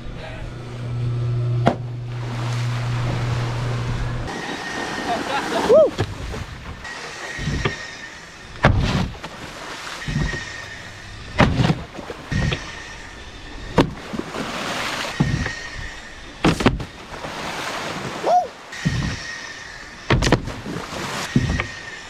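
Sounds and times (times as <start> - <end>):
faint high whine: 0.0 - 6.0, 9.6 - 13.8
water and wind rushing: 0.0 - 22.0
wakeboard thumps and knocks: 1.6 - 2.0, 5.9 - 6.8, 7.4 - 7.8, 8.6 - 9.4, 10.0 - 10.7, 11.3 - 12.7, 13.7 - 14.3, 15.1 - 15.6, 16.4 - 17.0, 18.8 - 19.2, 20.1 - 21.8.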